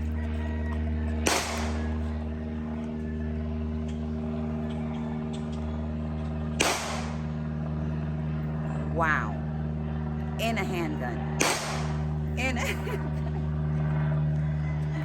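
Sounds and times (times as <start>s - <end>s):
vehicle engine idling: 0.0s - 15.0s
sharp bangs: 1.2s - 2.1s, 6.5s - 7.5s, 11.3s - 12.3s.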